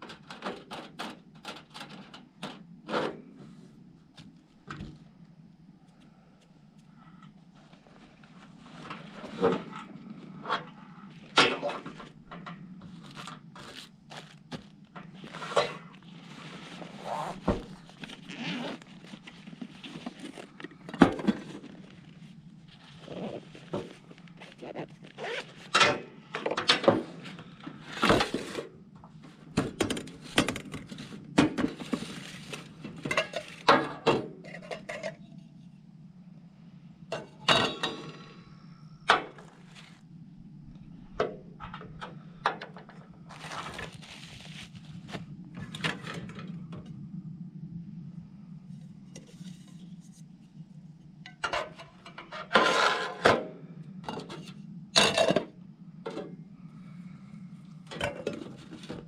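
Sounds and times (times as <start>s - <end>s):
steady low hum: 34.3s - 52.6s, 53.2s - 59.0s.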